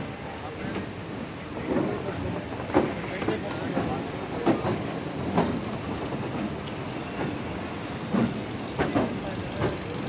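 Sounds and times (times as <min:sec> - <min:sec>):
railway coach rumbling: 0:00.0 - 0:10.0
wheel clacks over rail joints: 0:08.0 - 0:10.0.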